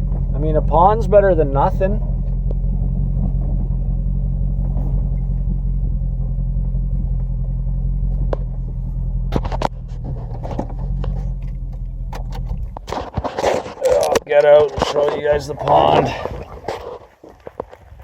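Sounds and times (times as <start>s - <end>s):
pickup engine rumbling: 0.0s - 18.0s
sharp clicks and knocks: 9.3s - 17.8s.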